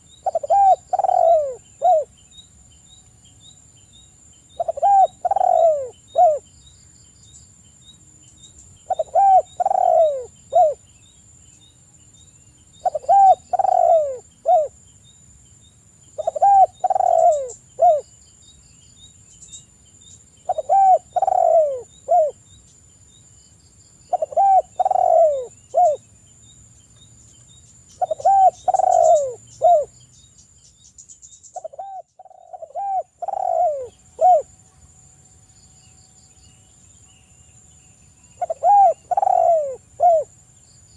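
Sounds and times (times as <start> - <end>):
dove cooing: 0.0 - 2.1, 4.6 - 6.4, 8.9 - 10.8, 12.8 - 14.8, 16.2 - 18.1, 20.5 - 22.4, 24.1 - 26.0, 28.0 - 29.9, 31.6 - 34.5, 38.4 - 40.3
high insect-like whine: 0.0 - 40.9.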